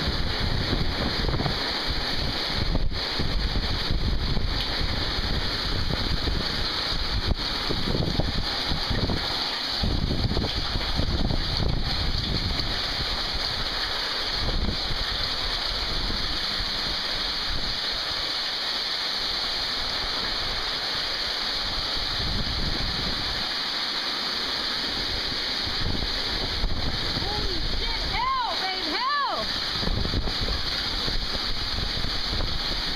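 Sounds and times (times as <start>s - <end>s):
wind buffeting microphone: 0.0s - 18.1s, 21.6s - 23.5s, 24.9s - 28.5s, 29.4s - 32.9s
heavy rain pouring: 0.0s - 32.9s.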